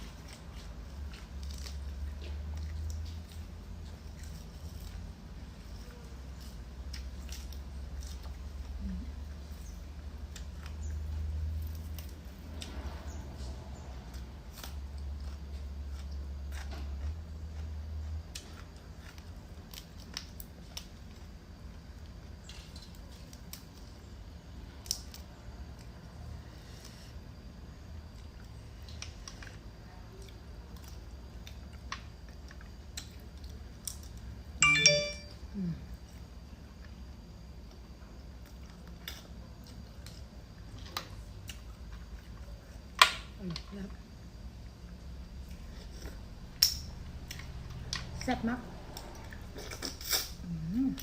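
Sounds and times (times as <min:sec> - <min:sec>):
chewing shrimp and shells: 0:00.0 - 0:34.5, 0:36.0 - 0:50.4
steady low hum: 0:00.0 - 0:51.0
sharp ringing clink: 0:34.6 - 0:35.4.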